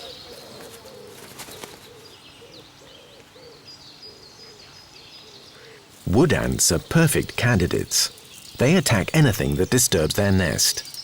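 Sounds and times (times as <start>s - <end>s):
bird cooing: 0.0s - 5.8s.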